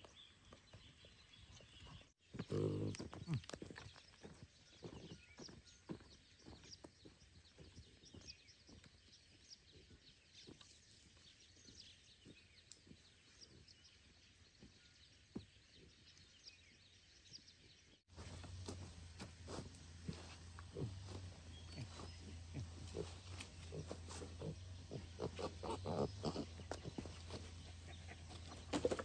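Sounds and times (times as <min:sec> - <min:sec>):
distant birds chirping: 0:00.0 - 0:29.0
footsteps on a dirt path: 0:02.3 - 0:13.8, 0:18.1 - 0:29.0.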